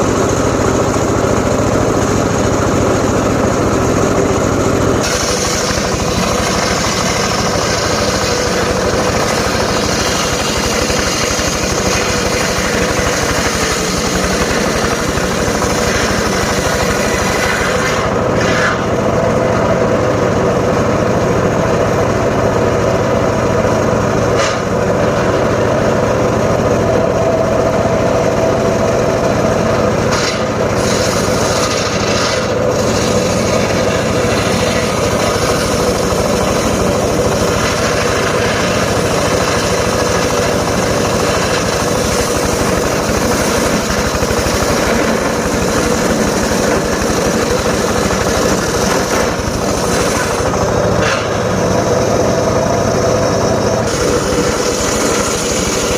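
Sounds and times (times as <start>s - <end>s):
circular saw cutting wood: 0.0s - 21.5s, 22.5s - 55.9s
sharp knocks from blade: 24.4s - 24.7s, 51.0s - 51.4s.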